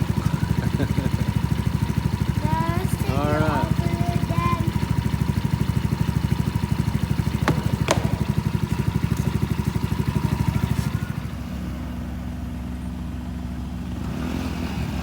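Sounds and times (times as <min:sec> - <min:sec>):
small engine idling: 0:00.0 - 0:15.0.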